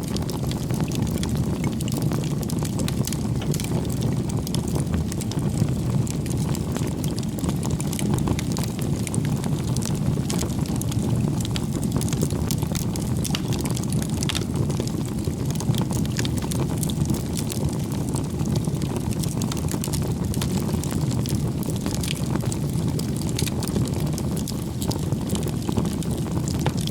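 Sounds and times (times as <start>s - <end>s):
campfire flames rumbling: 0.0s - 26.9s
logs crackling and popping: 0.0s - 26.9s.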